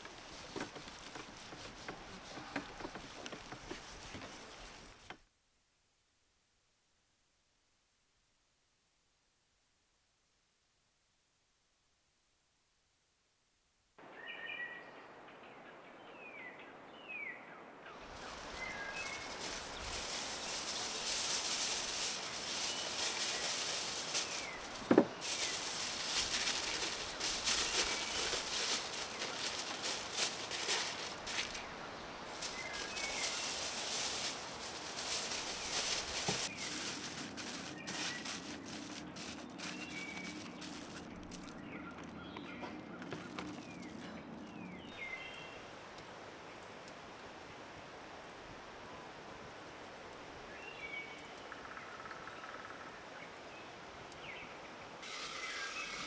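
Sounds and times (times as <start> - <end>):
small birds chirping: 0.0 - 5.1, 17.9 - 45.6
crackling rustling noise: 0.0 - 5.3, 17.9 - 51.0, 55.0 - 56.0.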